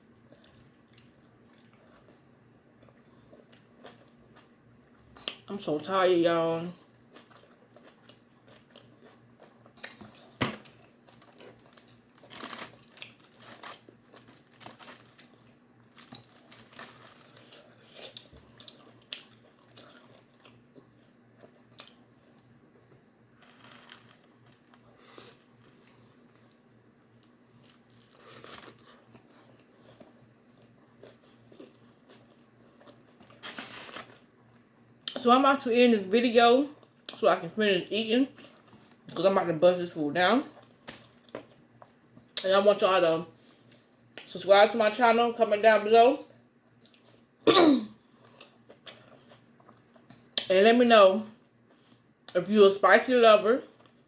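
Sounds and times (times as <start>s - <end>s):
person chewing crunchy food: 0.2s - 5.4s, 6.9s - 34.3s, 48.0s - 50.4s.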